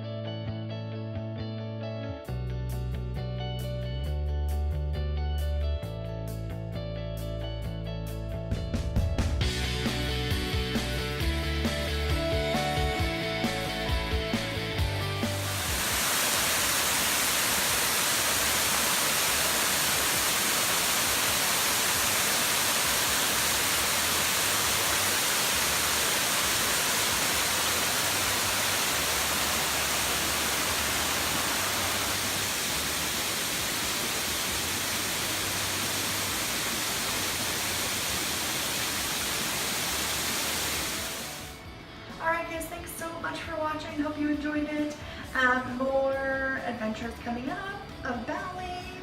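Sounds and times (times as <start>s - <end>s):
waterfall rushing: 15.2s - 41.6s
faint low music: 41.5s - 49.0s.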